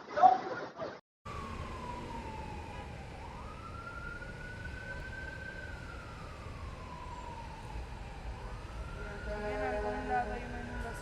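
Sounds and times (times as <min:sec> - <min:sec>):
emergency siren wailing: 0:01.3 - 0:11.0
low rumble: 0:08.4 - 0:11.0.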